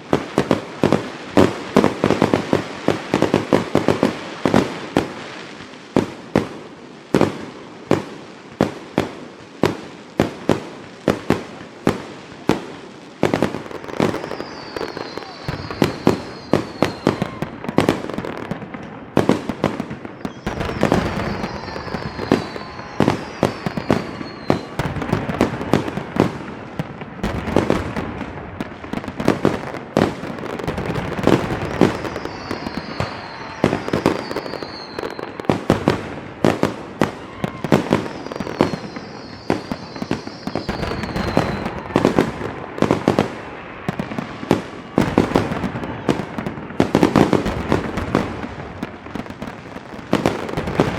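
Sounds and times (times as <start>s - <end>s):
fireworks bangs and crackling: 0.0s - 50.9s
fireworks whistles falling in pitch: 13.2s - 50.9s.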